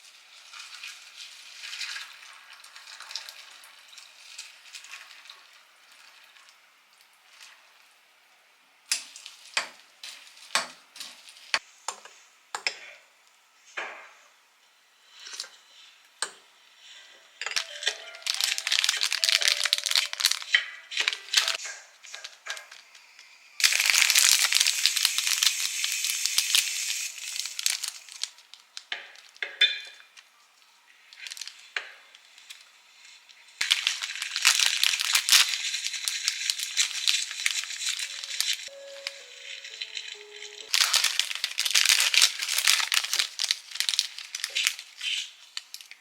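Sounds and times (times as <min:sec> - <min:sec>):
plastic packaging crinkling: 0:17.4 - 0:30.3, 0:31.0 - 0:46.0.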